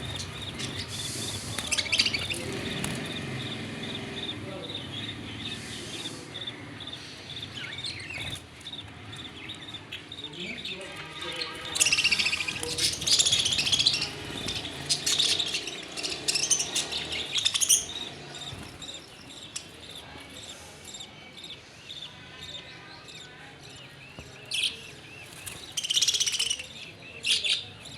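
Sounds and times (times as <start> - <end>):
birds chirping and calling: 0.0 - 27.9.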